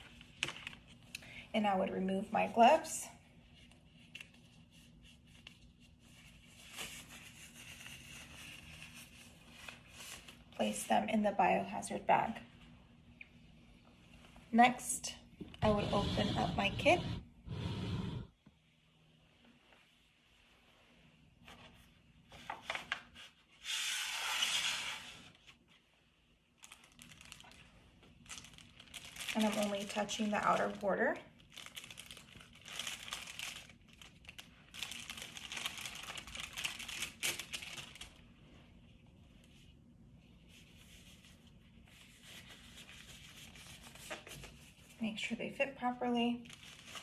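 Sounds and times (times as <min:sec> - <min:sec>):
packaging crinkling: 0:26.6 - 0:38.2, 0:46.4 - 0:47.0
packaging tearing: 0:28.2 - 0:30.0, 0:31.4 - 0:38.2.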